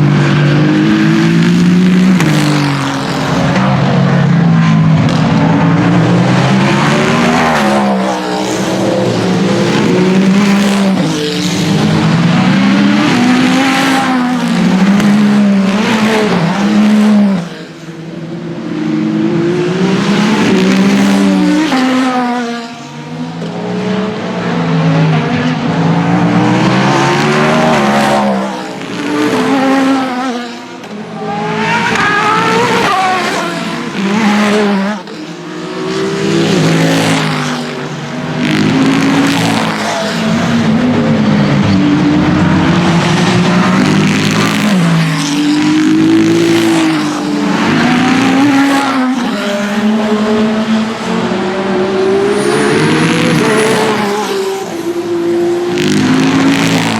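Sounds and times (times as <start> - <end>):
race cars passing at speed: 0.0 - 56.9.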